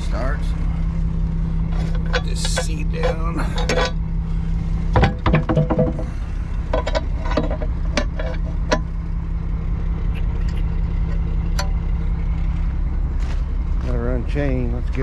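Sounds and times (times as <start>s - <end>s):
truck engine idling: 0.0s - 15.0s
metallic clinks and knocks: 1.6s - 4.2s, 4.9s - 9.1s, 9.9s - 12.2s.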